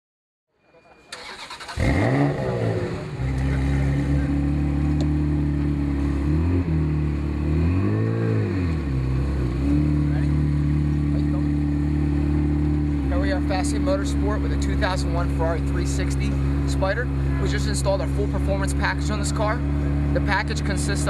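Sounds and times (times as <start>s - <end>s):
starter motor cranking: 1.1s - 2.0s
car engine idling: 1.1s - 7.8s, 8.6s - 21.0s
engine revving: 1.2s - 21.0s.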